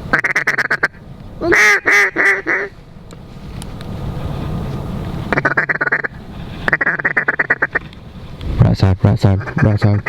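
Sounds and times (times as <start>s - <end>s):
duck call quacks: 0.1s - 2.7s, 5.3s - 6.1s, 6.7s - 7.8s
duck call rapid chuckle: 0.2s - 2.7s, 9.4s - 10.0s.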